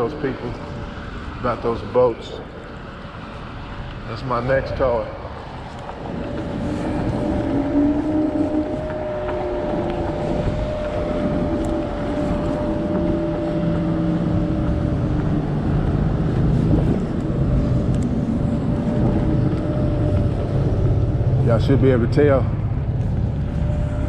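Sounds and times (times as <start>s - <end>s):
road noise: 0.0s - 24.0s
rushing wind: 0.0s - 24.0s
electric scooter motor whine: 5.3s - 24.0s.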